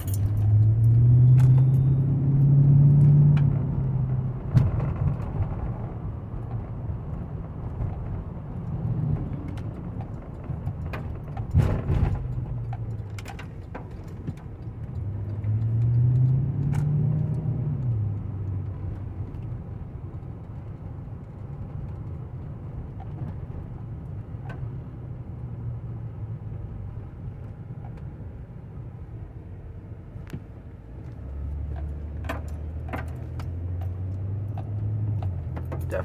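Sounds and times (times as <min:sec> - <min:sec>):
road rumble: 0:00.0 - 0:36.0
car engine running: 0:17.9 - 0:36.0.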